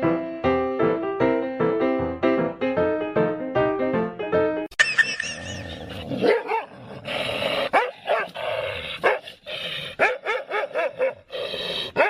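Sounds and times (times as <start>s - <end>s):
dog barking in high yips: 7.8s - 8.3s, 10.0s - 11.3s.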